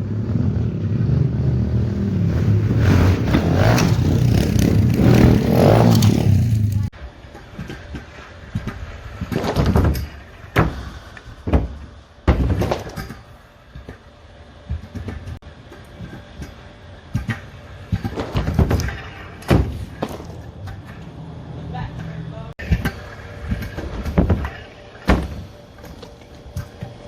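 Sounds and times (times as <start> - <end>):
pit bike engine revving: 0.0 - 6.9.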